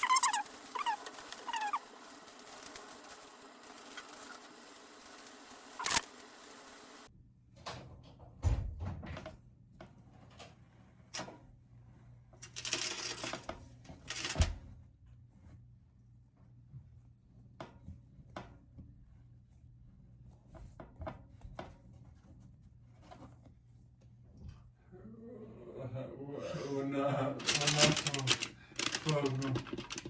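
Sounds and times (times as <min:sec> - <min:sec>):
rustling: 0:27.4 - 0:30.0.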